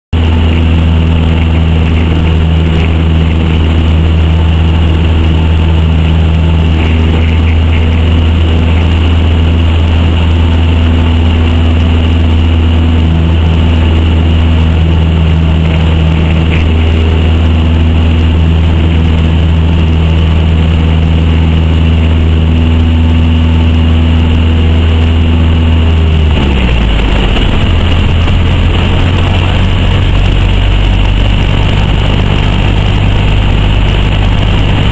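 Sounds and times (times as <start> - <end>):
light aircraft engine running: 0.1 - 34.9.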